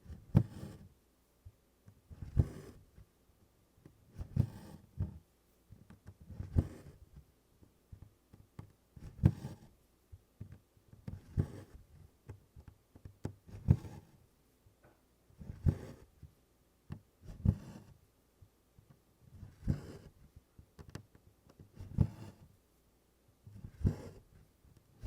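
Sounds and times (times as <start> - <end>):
needle and thread drawn through cloth: 1.9 - 3.0, 4.1 - 5.2, 5.8 - 7.2, 8.6 - 9.7, 10.4 - 12.0, 15.4 - 16.2, 17.2 - 18.0, 19.3 - 20.2, 21.6 - 22.5, 23.4 - 25.0.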